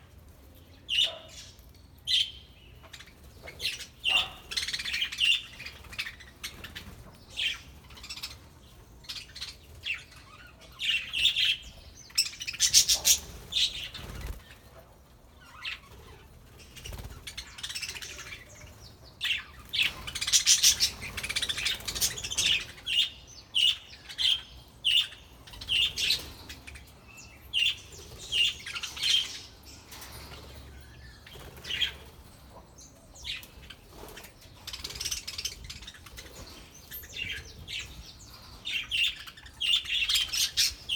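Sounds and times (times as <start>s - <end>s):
budgerigars chirping: 2.2s - 8.4s
wings fluttering: 12.6s - 14.7s, 15.8s - 18.0s, 30.0s - 32.3s.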